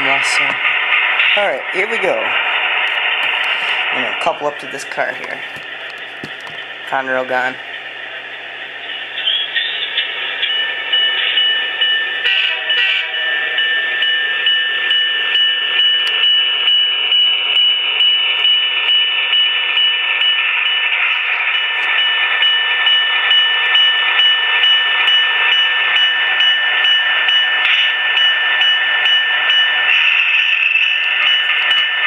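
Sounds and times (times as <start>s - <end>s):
model train diesel engine sound: 0.0s - 32.0s
steady high whine: 0.0s - 32.0s.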